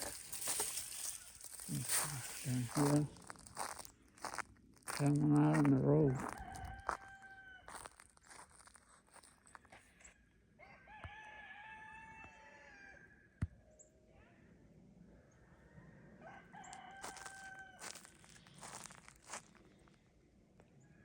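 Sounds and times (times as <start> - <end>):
crackling noises: 0.0 - 7.0, 17.0 - 20.0
rooster crowing: 6.0 - 8.0, 10.6 - 13.2, 16.2 - 18.2.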